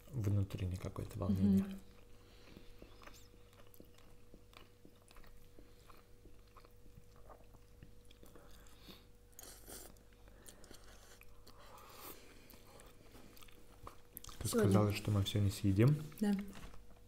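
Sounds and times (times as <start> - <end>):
chewing soft noodles: 1.8 - 14.8.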